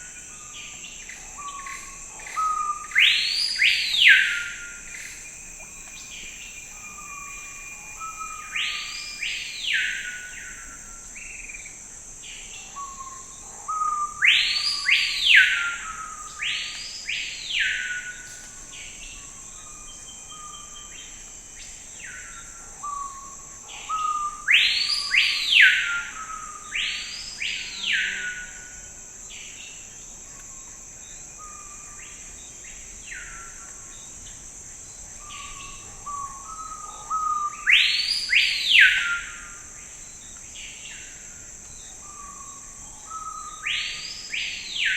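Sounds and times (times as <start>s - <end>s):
steady high hiss: 0.0s - 12.4s
bird whistling song: 35.2s - 39.4s.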